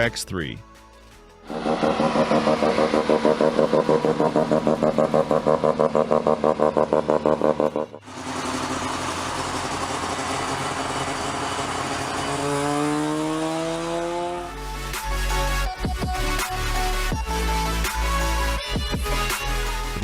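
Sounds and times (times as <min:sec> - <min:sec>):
rotary engine running: 0:01.5 - 0:13.9.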